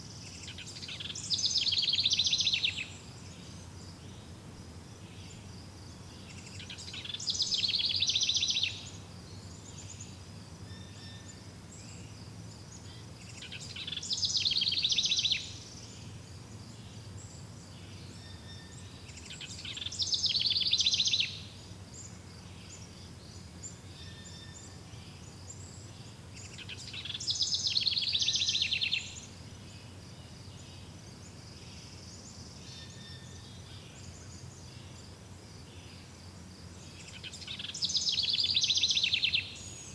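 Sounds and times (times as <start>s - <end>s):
songbird trilling: 0.4s - 3.0s, 6.4s - 9.0s, 13.3s - 15.6s, 18.3s - 21.5s, 26.5s - 29.3s, 37.1s - 39.9s.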